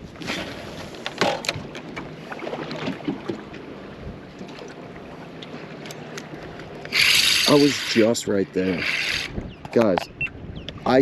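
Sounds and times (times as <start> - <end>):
handling knocks and clicks: 9.6 - 10.1.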